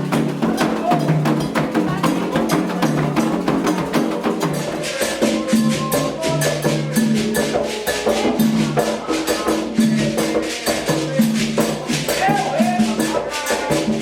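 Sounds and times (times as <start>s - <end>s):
chant singing: 0.0s - 14.0s
hand drums and shaker percussion: 0.0s - 14.0s.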